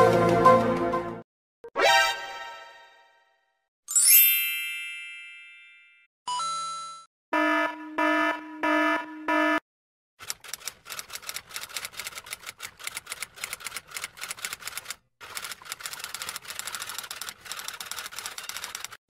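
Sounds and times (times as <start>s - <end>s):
typewriter typing: 10.2s - 19.0s.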